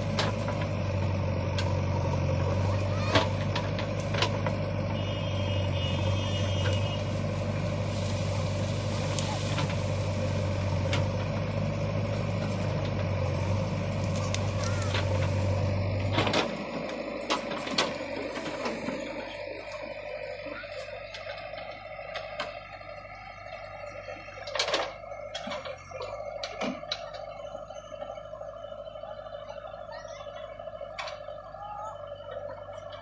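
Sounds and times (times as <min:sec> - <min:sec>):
diesel engine droning: 0:00.0 - 0:33.0.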